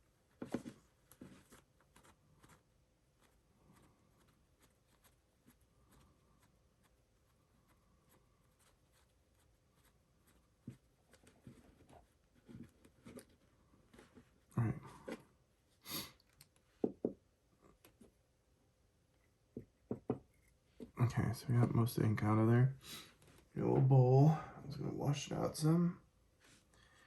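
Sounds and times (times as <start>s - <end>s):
pen clicks and rubbing: 1.4s - 2.6s
soft knocks: 19.6s - 20.3s.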